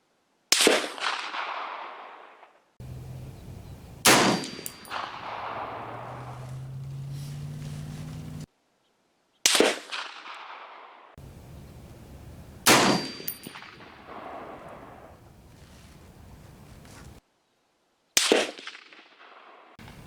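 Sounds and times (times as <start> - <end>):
rifle shots with echo: 0.5 - 2.4, 4.0 - 6.4, 12.0 - 15.5, 18.2 - 20.0
low steady hum: 2.8 - 8.5, 11.2 - 17.2.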